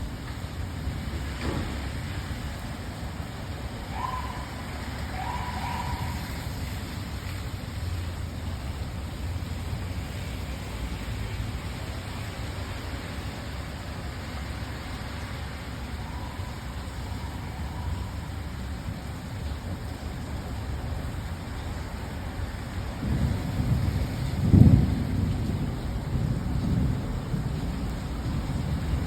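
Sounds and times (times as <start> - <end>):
low traffic rumble: 0.0 - 29.0
rain hissing: 0.0 - 29.0.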